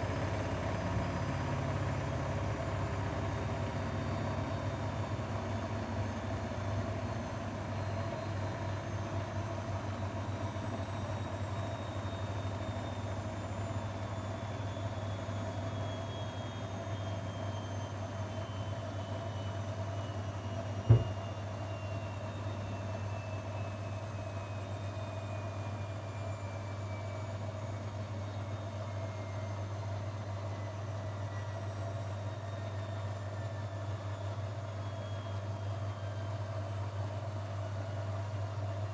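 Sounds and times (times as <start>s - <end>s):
washing machine spinning down: 0.0s - 38.9s.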